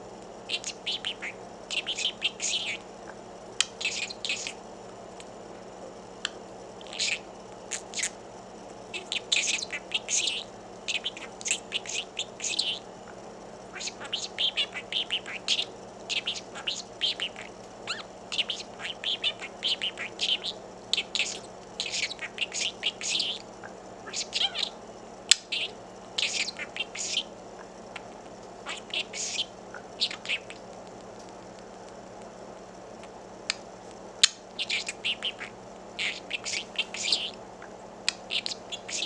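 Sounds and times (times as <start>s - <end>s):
budgerigar chirping: 0.5s - 2.9s, 3.6s - 4.6s, 6.8s - 8.2s, 8.9s - 12.9s, 13.6s - 30.8s, 32.9s - 37.4s, 38.1s - 39.0s.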